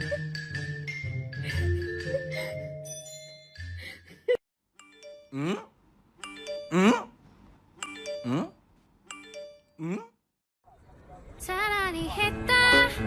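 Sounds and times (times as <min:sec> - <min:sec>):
soundtrack music with mallet percussion: 0:00.0 - 0:05.6, 0:06.2 - 0:06.9, 0:07.8 - 0:08.5.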